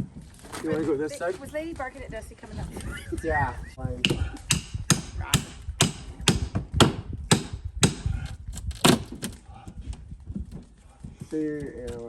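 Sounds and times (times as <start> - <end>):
hammer striking wood: 4.0 - 8.1, 8.8 - 9.4.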